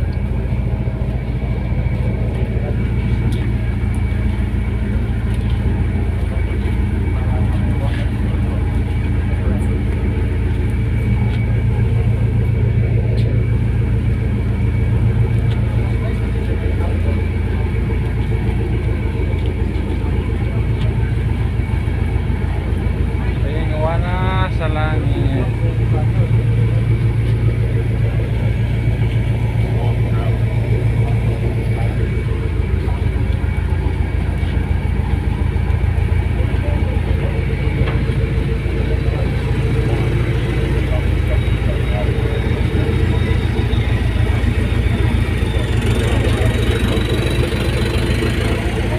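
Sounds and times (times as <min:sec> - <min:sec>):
faint steady whine: 0:00.0 - 0:48.9
ferry engines droning: 0:00.0 - 0:48.9.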